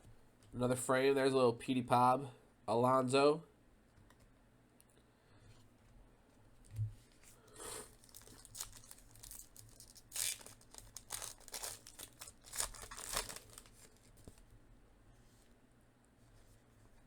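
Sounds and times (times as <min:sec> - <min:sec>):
card packs crinkling: 0:07.5 - 0:14.4.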